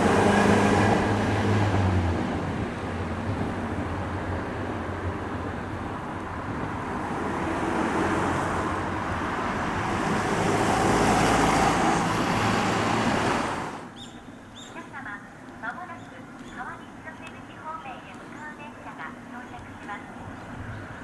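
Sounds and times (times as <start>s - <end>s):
electric train rumbling on rails: 0.0s - 14.4s.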